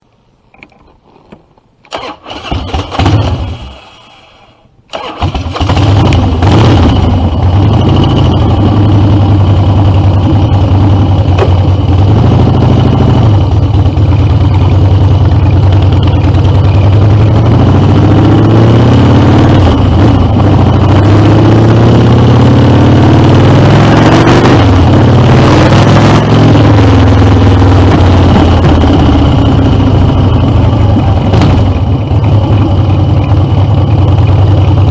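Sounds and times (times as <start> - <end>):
engine cranking: 1.9 - 4.0, 4.9 - 6.6
motorcycle engine revving: 1.9 - 4.1, 4.9 - 34.9
motorcycle engine running loud: 5.5 - 34.9.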